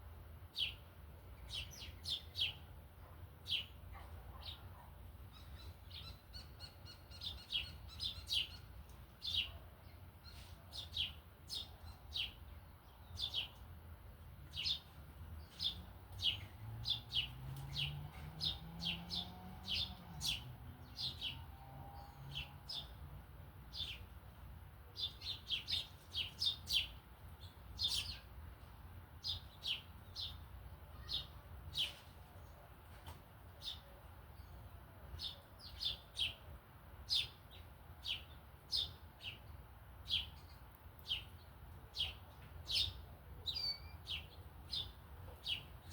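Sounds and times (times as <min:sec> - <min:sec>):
small birds chirping: 0:00.5 - 0:24.2, 0:24.9 - 0:45.9.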